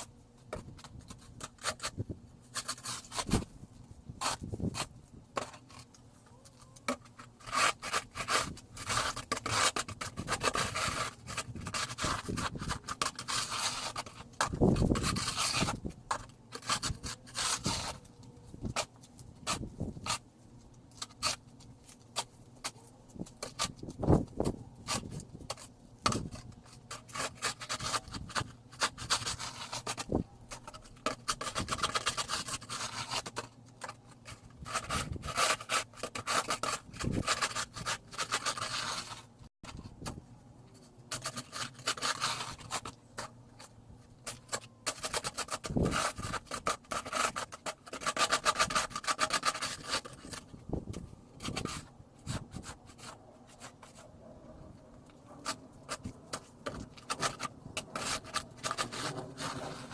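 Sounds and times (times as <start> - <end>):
snow shovel scraping snow: 58.0 - 59.9.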